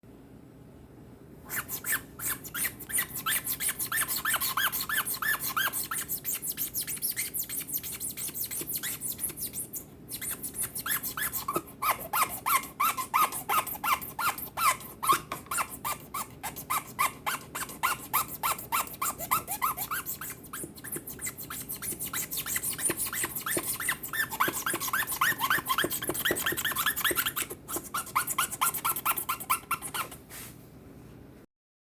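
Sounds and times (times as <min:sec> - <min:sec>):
squeaky strainer chirps: 0:01.5 - 0:30.2.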